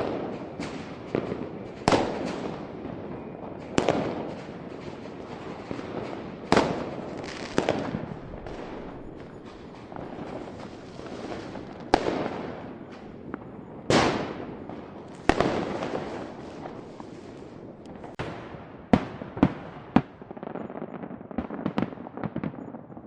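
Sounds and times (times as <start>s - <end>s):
small firework pops: 0.0s - 2.6s, 3.6s - 18.4s, 19.0s - 23.0s
crackling rumble: 0.0s - 19.4s
fireworks bangs: 0.0s - 23.0s.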